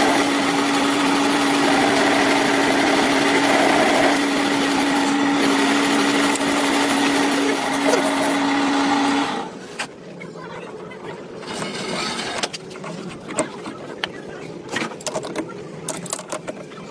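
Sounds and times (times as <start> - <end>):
electric machine humming: 0.0 - 9.7.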